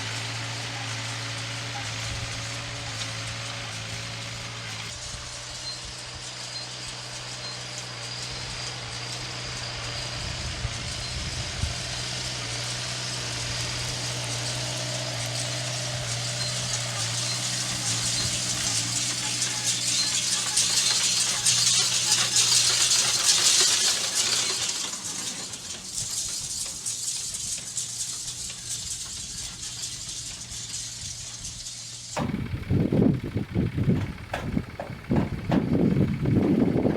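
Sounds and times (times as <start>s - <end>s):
tractor engine running: 0.0s - 36.9s
baler mechanism rattling: 15.9s - 36.9s.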